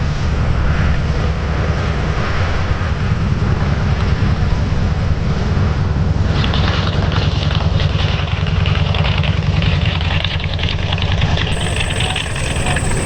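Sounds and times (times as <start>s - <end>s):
aircraft engines droning: 11.5s - 13.0s.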